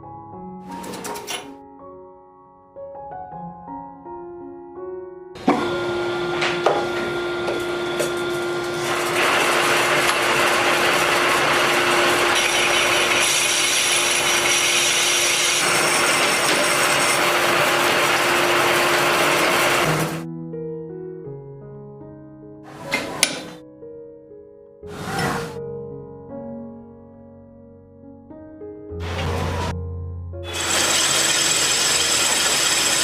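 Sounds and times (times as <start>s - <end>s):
power tool humming: 5.4s - 20.2s, 30.5s - 33.0s
harsh rasping grinding: 9.0s - 19.8s, 30.5s - 33.0s.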